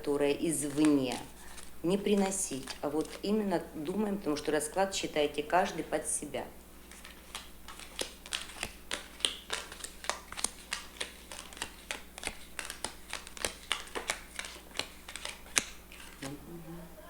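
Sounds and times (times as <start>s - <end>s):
playing cards being shuffled: 0.4s - 3.6s, 6.8s - 16.4s.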